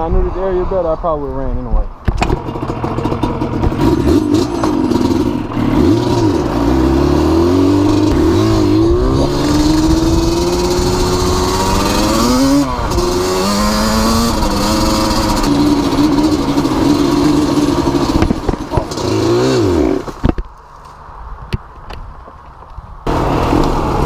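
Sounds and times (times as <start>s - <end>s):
motorcycle engine accelerating: 2.1s - 20.4s.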